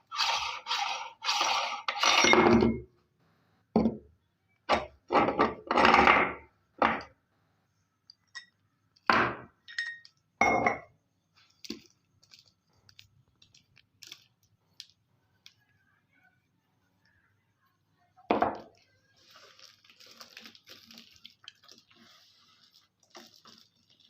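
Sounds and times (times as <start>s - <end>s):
meat grinder crunching peanuts: 0.0s - 2.2s.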